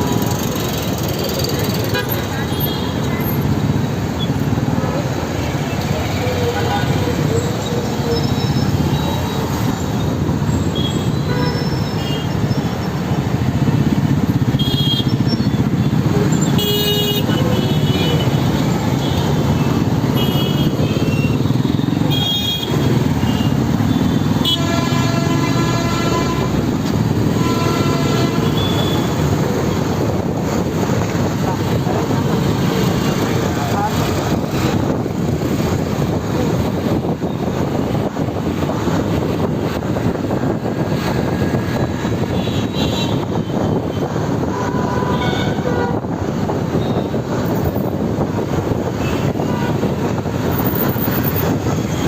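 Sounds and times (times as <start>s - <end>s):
motorbike engine and road noise: 0.0s - 52.0s
vehicle horns honking: 10.7s - 12.7s, 14.5s - 15.4s, 16.2s - 19.4s, 20.1s - 29.8s, 42.2s - 46.1s.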